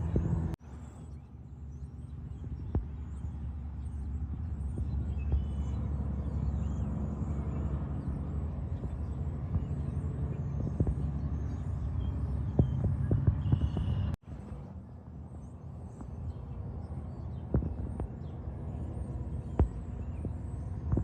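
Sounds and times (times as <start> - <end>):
heavy trucks passing: 0.0 - 0.6
highway traffic rumble: 0.0 - 21.0.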